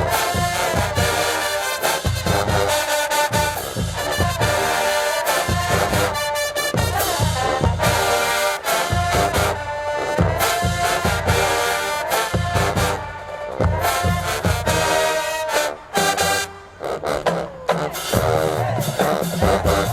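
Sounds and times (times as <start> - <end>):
brass melody: 0.0 - 19.9
bass drums and cymbals: 17.9 - 19.9.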